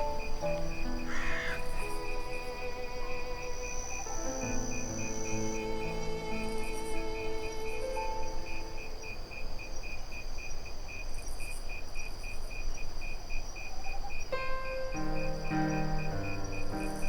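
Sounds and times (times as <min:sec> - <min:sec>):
waltz music: 0:00.0 - 0:09.5, 0:14.4 - 0:17.0
crickets chirping: 0:00.0 - 0:17.0
high insect trill: 0:00.0 - 0:17.0.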